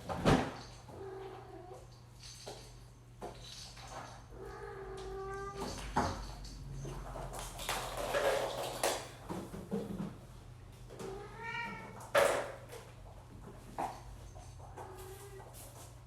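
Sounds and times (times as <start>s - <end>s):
cat meowing: 4.4s - 5.7s, 11.0s - 12.0s.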